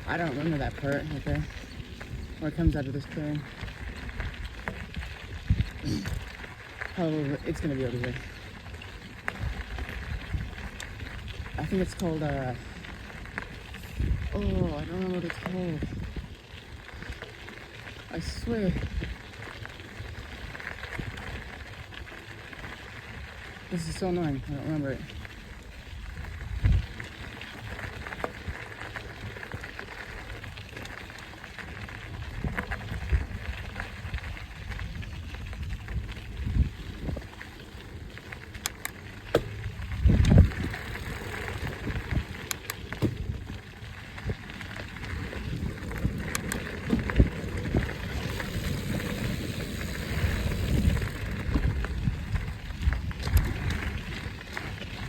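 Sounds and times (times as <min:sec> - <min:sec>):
bike clicks and rattles: 0:00.0 - 0:55.0
bike tyres crackling on dirt: 0:00.0 - 0:55.0
wind: 0:00.0 - 0:55.0.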